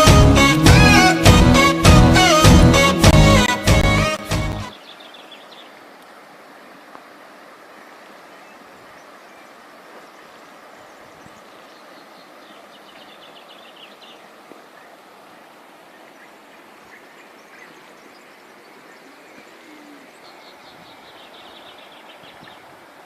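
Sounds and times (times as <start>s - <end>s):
songbirds trilling: 4.6s - 6.0s, 7.8s - 15.2s, 15.8s - 22.9s.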